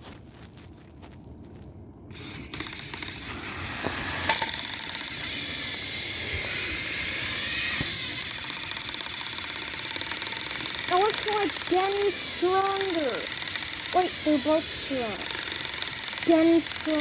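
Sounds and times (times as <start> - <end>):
toy train motors whirring: 2.1 - 17.0.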